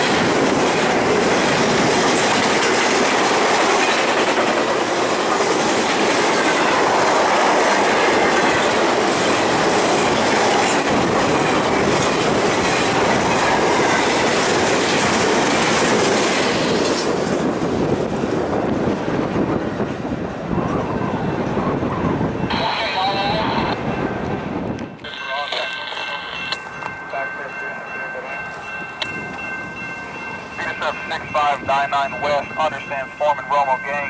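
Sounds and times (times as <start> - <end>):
train wheels clacking on rail joints: 0.0 - 17.6.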